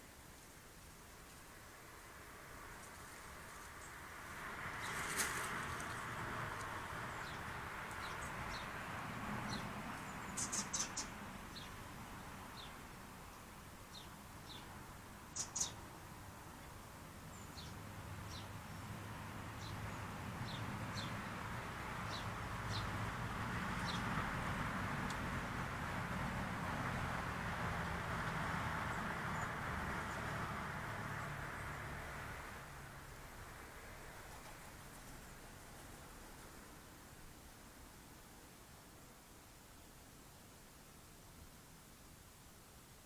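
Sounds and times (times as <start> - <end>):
small bird chirping: 9.5 - 11.8, 15.3 - 15.8.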